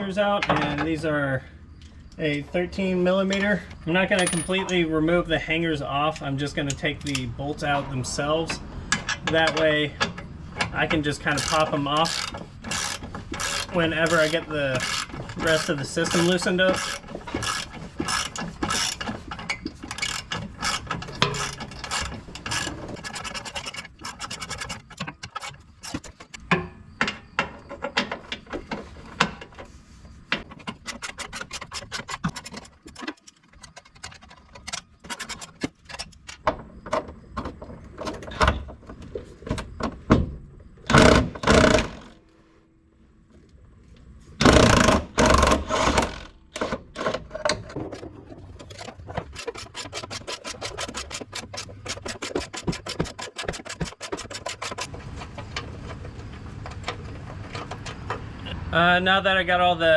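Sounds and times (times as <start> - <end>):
ratchet wrench clicking: 11.4 - 19.0.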